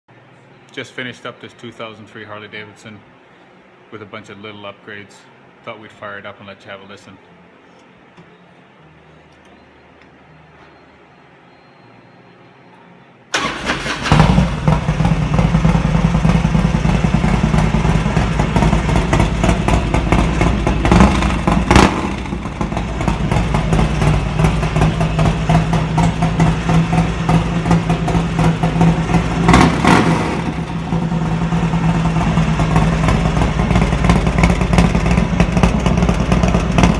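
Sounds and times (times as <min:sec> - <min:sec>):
motorcycle engine starting and idling: 0:13.3 - 0:36.9.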